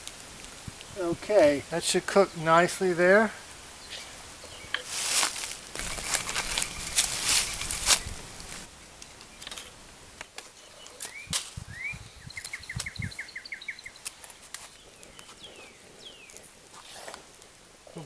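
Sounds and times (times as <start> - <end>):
campfire crackling: 0.0 - 18.0
wild bird calling: 3.4 - 9.8, 10.5 - 18.0.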